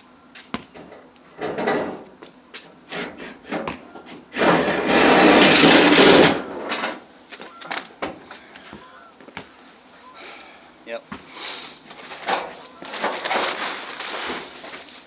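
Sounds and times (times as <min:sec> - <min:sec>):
harsh scraping on sheet metal: 0:02.9 - 0:03.7, 0:04.3 - 0:07.0, 0:12.0 - 0:15.0.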